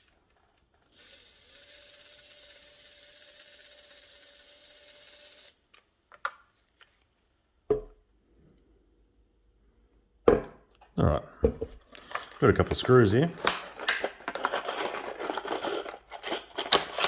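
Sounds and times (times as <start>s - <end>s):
drill whining: 0.9s - 5.6s
drill handling clicks and knock: 12.0s - 17.0s.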